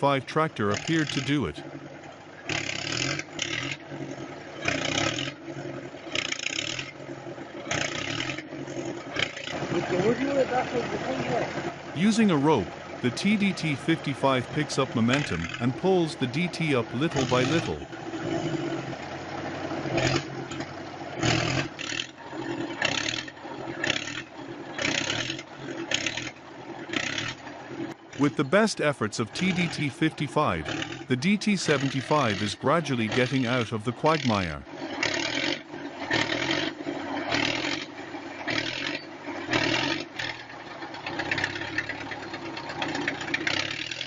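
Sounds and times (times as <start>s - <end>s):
tractor diesel engine under load: 0.0s - 44.0s.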